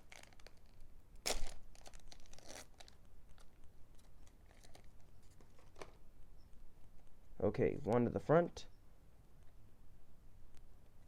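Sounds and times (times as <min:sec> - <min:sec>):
foil wrapper tearing: 0:00.0 - 0:04.9
wrapper crinkling and rustling: 0:00.0 - 0:06.0.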